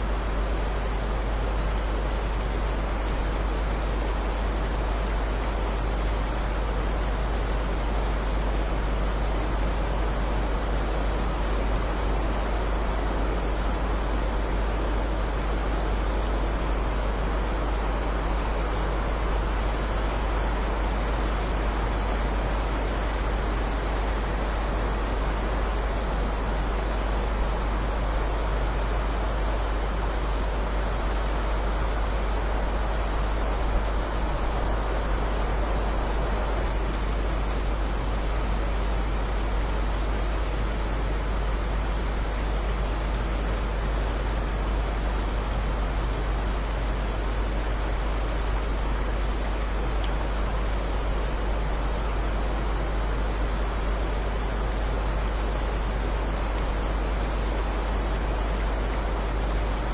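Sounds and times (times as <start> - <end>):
heavy rain hissing: 0.0 - 59.9.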